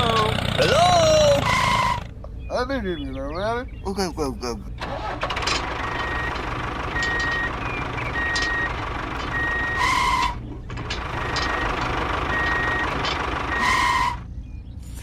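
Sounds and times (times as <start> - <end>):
engine rumble: 0.0 - 15.0
reversing alarm beeping: 5.7 - 14.2.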